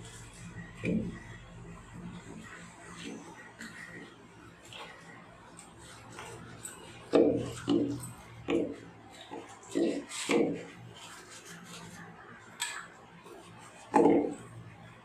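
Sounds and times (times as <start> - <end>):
sponge rubbing plastic: 2.0 - 12.6.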